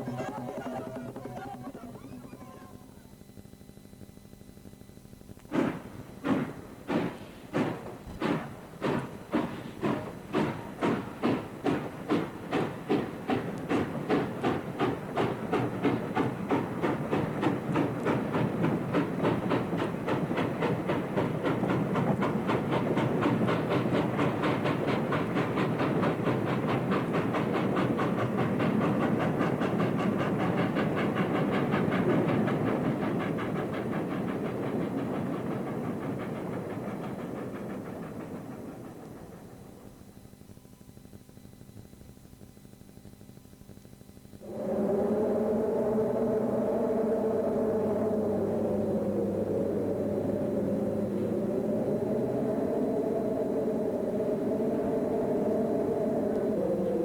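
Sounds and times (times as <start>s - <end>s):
steam locomotive chuffing: 0.0s - 2.9s, 5.4s - 40.7s, 44.4s - 57.0s.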